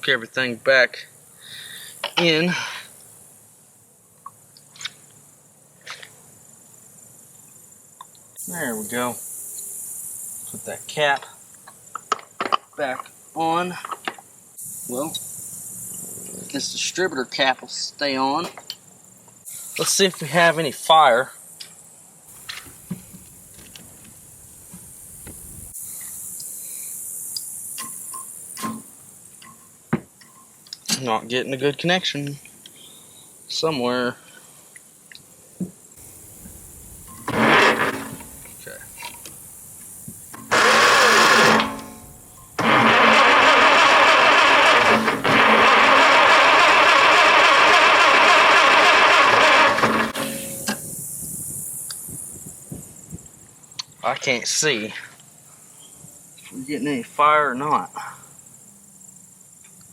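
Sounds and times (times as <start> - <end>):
high-pitched hiss: 0.0 - 44.5, 50.0 - 59.9
engine cranking without starting: 37.1 - 38.5, 40.4 - 50.8.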